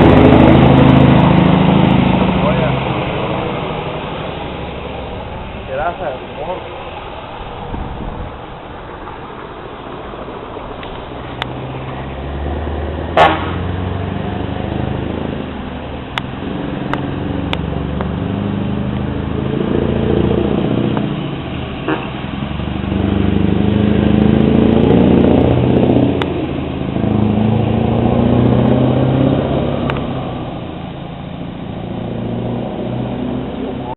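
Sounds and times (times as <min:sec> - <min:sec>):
diesel truck engine revving: 0:00.0 - 0:33.9
short sharp blast: 0:13.2 - 0:13.7.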